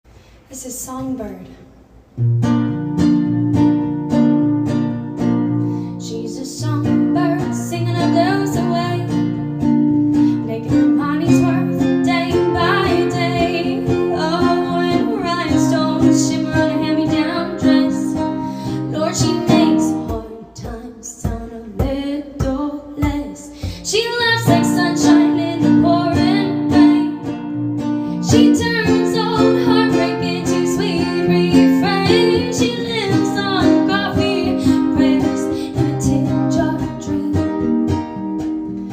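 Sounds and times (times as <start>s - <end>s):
acoustic guitar strumming: 2.2s - 38.9s
woman singing: 6.0s - 9.4s, 10.3s - 27.4s, 28.1s - 38.0s.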